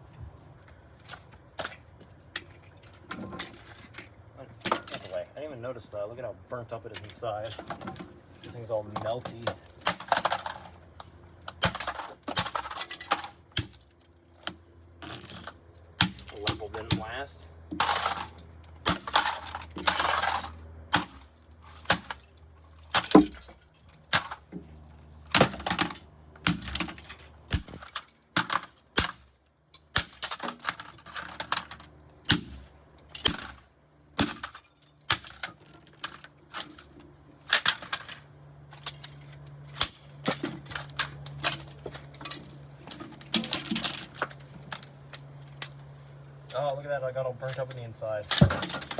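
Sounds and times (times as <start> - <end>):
plastic toy being smashed: 8.8 - 10.8, 11.5 - 14.0, 17.8 - 24.6, 25.2 - 44.9, 48.3 - 48.9.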